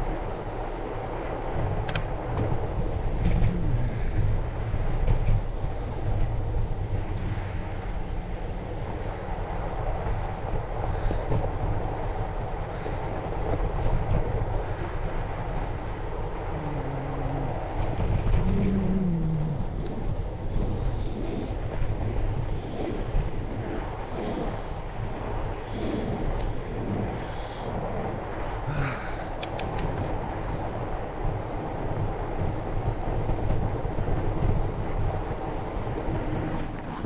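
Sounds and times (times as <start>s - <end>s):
bike riding on snowy trail: 0.0s - 29.3s
wind rumbling on microphone: 0.0s - 37.0s
low tones shifting in pitch: 16.2s - 20.3s.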